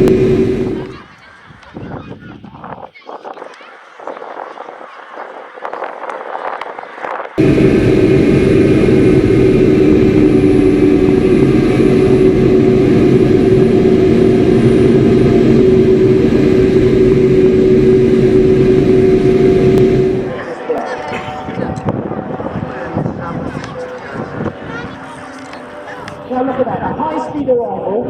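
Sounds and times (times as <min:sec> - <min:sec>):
aircraft engine drone: 0:00.0 - 0:01.3, 0:07.4 - 0:28.0.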